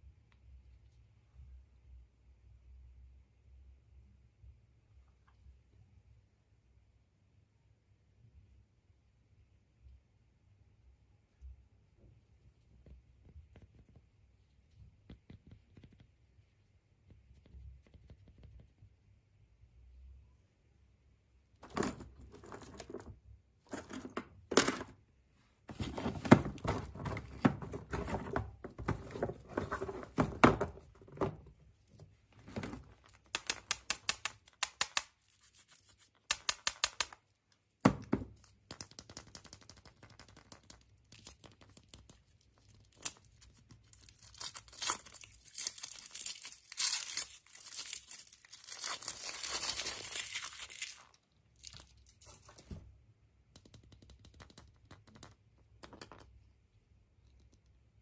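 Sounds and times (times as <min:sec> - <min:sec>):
wrapping being torn and crinkled: 0:42.6 - 0:52.4.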